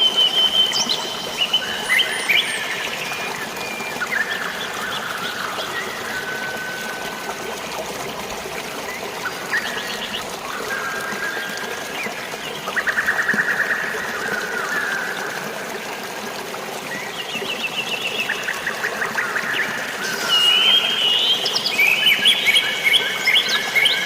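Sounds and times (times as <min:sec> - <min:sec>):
birds singing trills and chirps: 0:00.0 - 0:07.0, 0:16.9 - 0:24.0
flowing water: 0:00.0 - 0:24.0.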